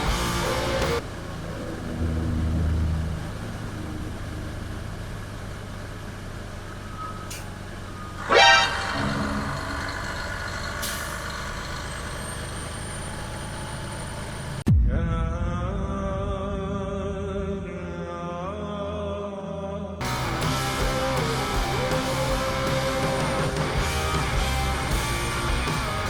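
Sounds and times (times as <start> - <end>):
truck engine and road drone: 0.0 - 18.2, 20.0 - 26.0
loud horn blast: 8.2 - 10.0.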